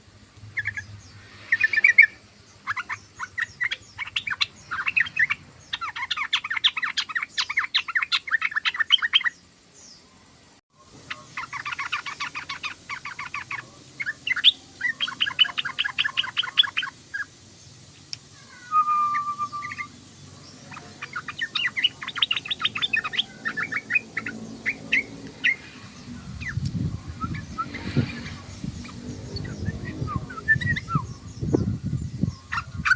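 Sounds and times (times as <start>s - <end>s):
bird chattering: 0.5s - 9.4s, 11.0s - 17.4s, 18.4s - 32.9s
low whistled bird note: 18.6s - 19.9s, 23.8s - 31.3s.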